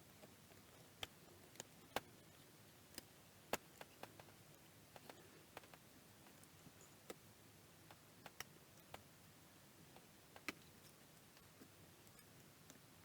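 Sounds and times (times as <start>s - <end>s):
faint clicks of small parts: 2.9s - 7.2s, 9.9s - 12.9s.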